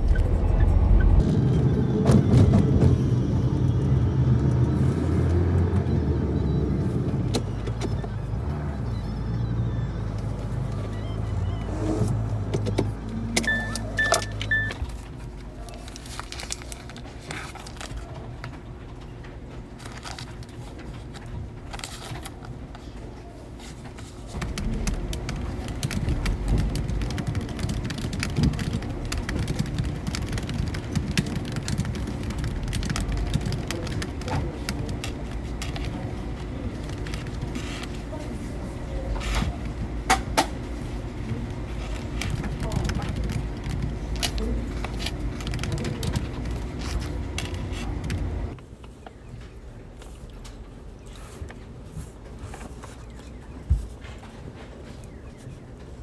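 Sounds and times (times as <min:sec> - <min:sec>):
road vehicle rumble: 0:00.0 - 0:56.0
short electronic beeps: 0:13.4 - 0:14.8.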